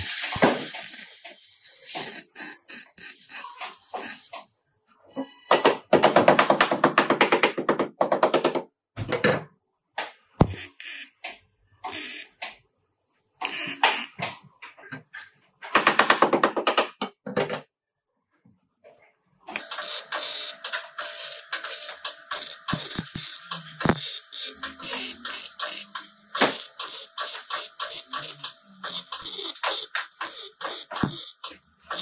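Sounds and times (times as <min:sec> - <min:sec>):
power tool hammering: 0:30.6 - 0:32.0.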